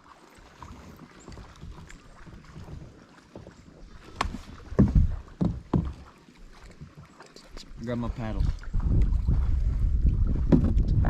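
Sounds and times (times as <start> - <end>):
wind buffeting microphone: 4.2 - 5.7, 8.1 - 11.0.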